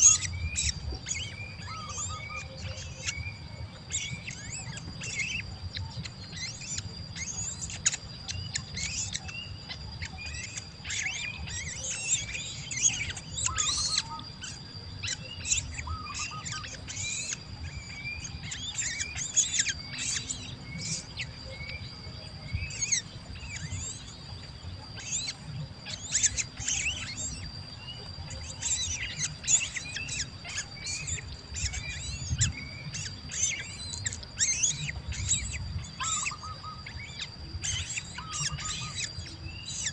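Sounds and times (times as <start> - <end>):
baby birds chirping: 0.0 - 39.9
steady high whine: 0.0 - 39.9.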